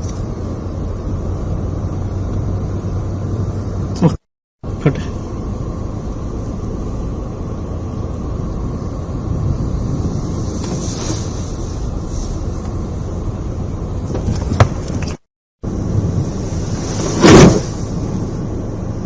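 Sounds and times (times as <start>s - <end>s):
wind rushing over microphone: 6.2s - 19.0s.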